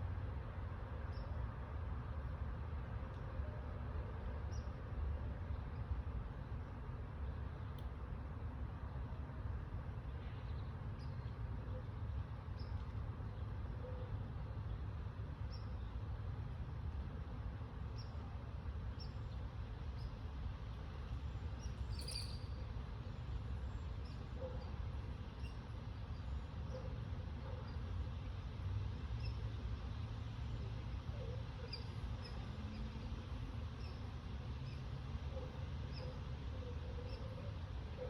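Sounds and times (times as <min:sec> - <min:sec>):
faint high chirps: 0:21.9 - 0:22.6.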